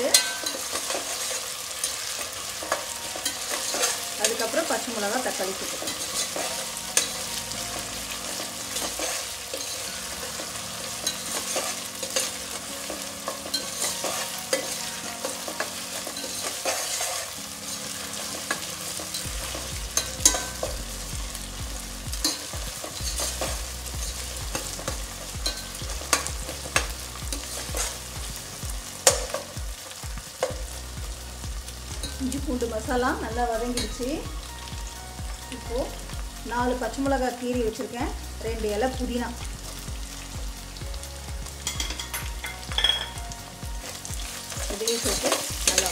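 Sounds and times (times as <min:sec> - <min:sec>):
onions sizzling in hot oil: 0:00.0 - 0:45.9
metal spoon scraping a pot: 0:00.1 - 0:04.4, 0:05.7 - 0:07.2, 0:08.2 - 0:10.4, 0:11.0 - 0:17.4.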